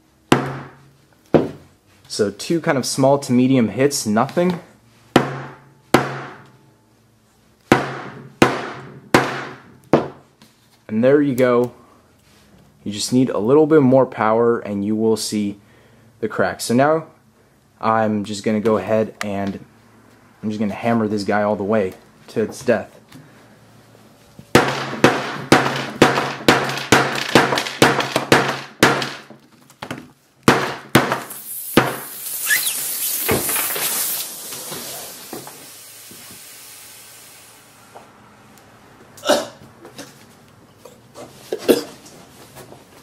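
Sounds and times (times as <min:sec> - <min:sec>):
hammer striking smartphone: 0:05.2 - 0:06.5
battery venting hiss: 0:31.2 - 0:38.0.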